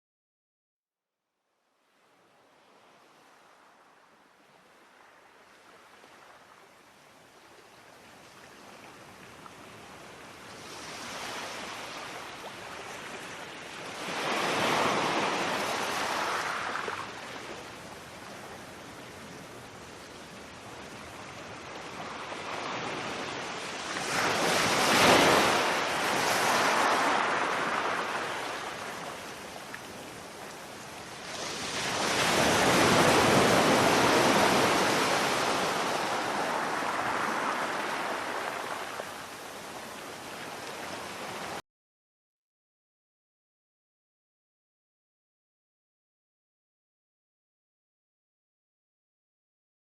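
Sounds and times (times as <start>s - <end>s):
sea waves breaking on a beach: 1.9s - 41.6s.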